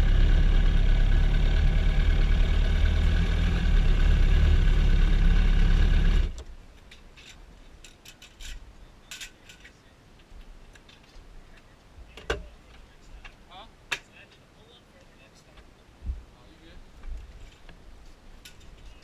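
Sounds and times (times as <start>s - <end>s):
motorcycle engine idling: 0.0s - 6.4s.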